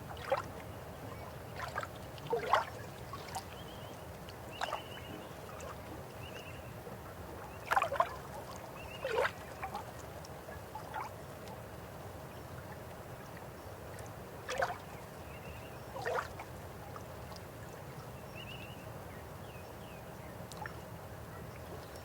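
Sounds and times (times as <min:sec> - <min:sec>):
river water flowing: 0:00.0 - 0:15.3
water gurgles and plops: 0:01.5 - 0:03.7, 0:07.4 - 0:10.0.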